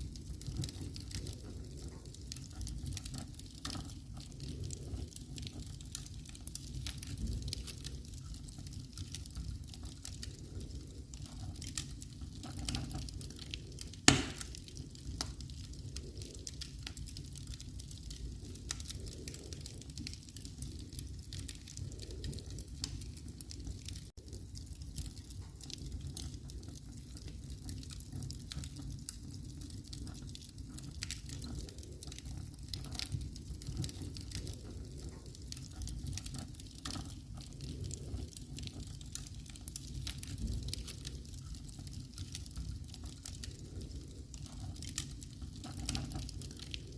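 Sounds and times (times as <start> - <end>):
wood fire crackling: 0.0 - 46.9
loud pop of burning wood: 14.1 - 14.6.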